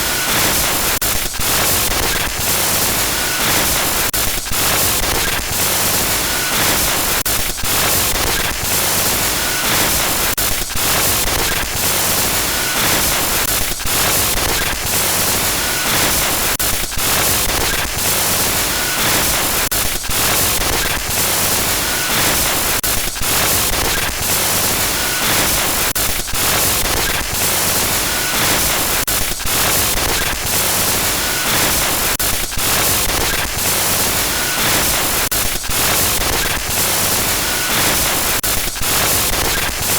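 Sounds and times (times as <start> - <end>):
harsh glitch static: 21.9 - 39.9.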